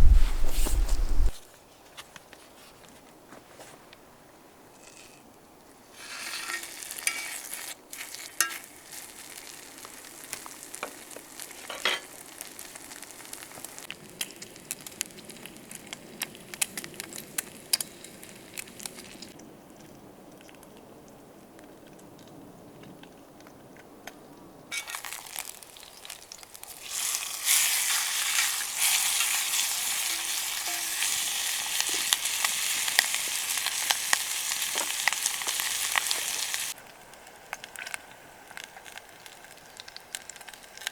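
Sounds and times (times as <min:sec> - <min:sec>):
food sizzling in a pan: 0:05.9 - 0:15.7, 0:16.6 - 0:19.3, 0:24.7 - 0:36.8
campfire crackles and pops: 0:06.0 - 0:40.9.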